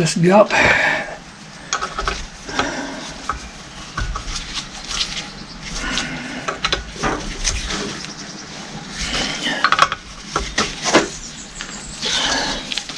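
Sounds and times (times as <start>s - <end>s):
hand tools clicking and knocking: 1.7s - 3.4s, 9.3s - 11.1s.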